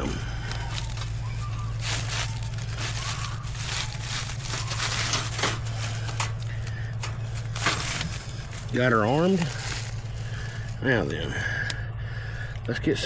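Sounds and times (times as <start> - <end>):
steady low hum: 0.0 - 13.0
wire trap mesh rattling: 1.8 - 10.7.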